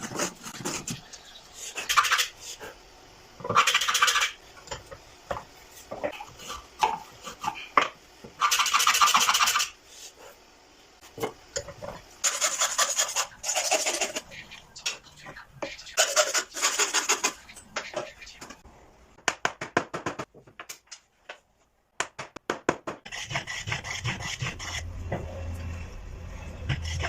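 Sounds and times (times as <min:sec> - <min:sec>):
hand tool scraping wood: 0:00.0 - 0:01.0, 0:23.1 - 0:24.9.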